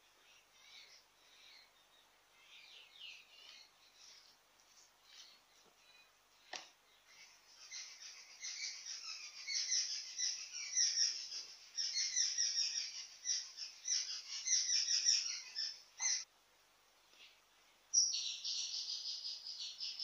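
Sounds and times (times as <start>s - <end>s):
small birds chirping rapidly: 0.0s - 16.3s, 17.2s - 20.0s.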